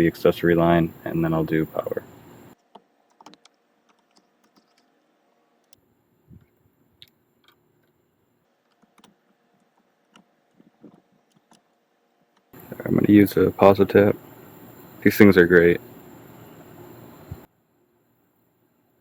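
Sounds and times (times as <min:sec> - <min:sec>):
small clicks and taps: 0:02.6 - 0:04.9, 0:08.6 - 0:11.7.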